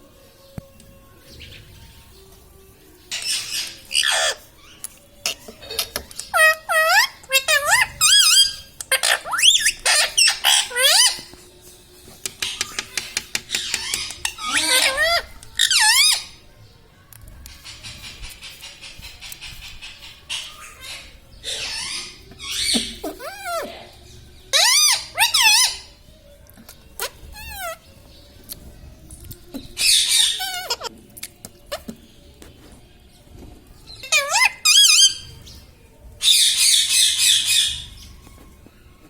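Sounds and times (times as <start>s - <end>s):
parakeet clicking chatter: 3.1s - 11.3s, 12.2s - 16.3s, 17.5s - 23.6s
parakeet squawking: 3.1s - 11.3s, 12.4s - 16.4s, 17.6s - 23.9s, 24.5s - 25.9s, 29.8s - 30.9s, 34.0s - 35.4s.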